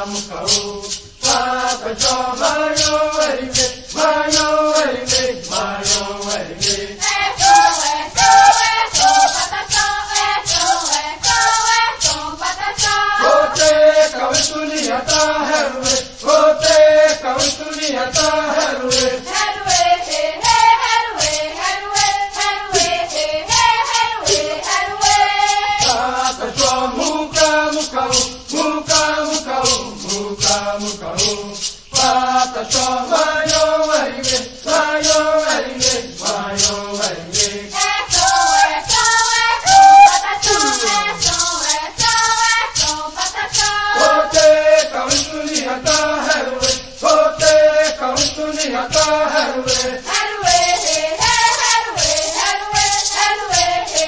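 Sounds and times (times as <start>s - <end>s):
shaken rattle beat: 0.0s - 54.0s
person chanting a song: 13.2s - 14.3s, 39.6s - 41.5s.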